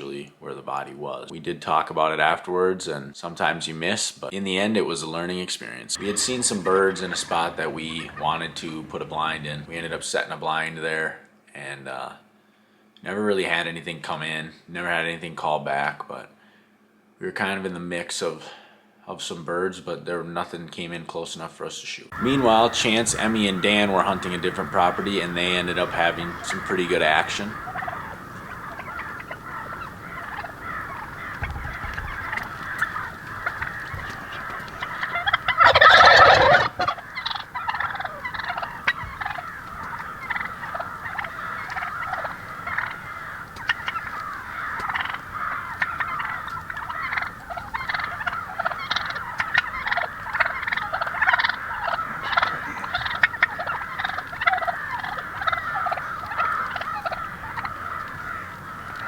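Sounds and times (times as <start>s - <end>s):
wild turkeys gobbling: 5.9s - 11.4s, 22.1s - 59.0s.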